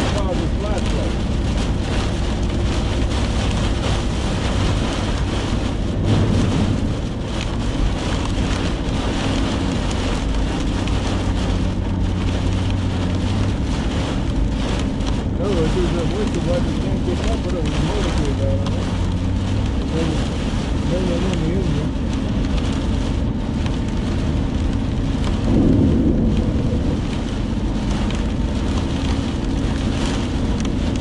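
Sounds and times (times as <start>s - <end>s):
engine hum: 0.0s - 31.0s
heavy rain on a vehicle: 0.0s - 31.0s
road noise: 0.0s - 31.0s.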